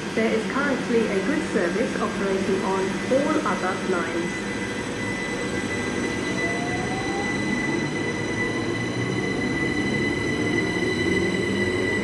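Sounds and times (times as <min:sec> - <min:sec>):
train low rumble: 0:00.0 - 0:12.0
train wheels squealing: 0:04.3 - 0:12.0.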